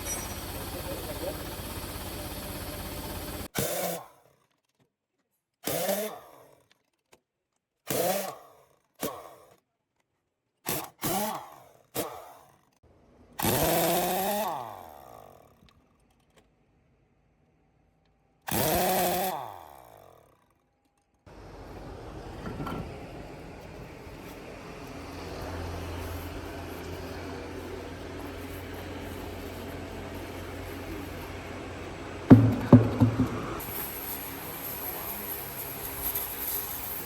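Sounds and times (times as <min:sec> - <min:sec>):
handheld power tool bursts: 0:00.0 - 0:04.1, 0:05.6 - 0:06.5, 0:07.8 - 0:09.4, 0:10.6 - 0:12.4, 0:13.4 - 0:15.6, 0:18.5 - 0:20.2, 0:32.3 - 0:37.0.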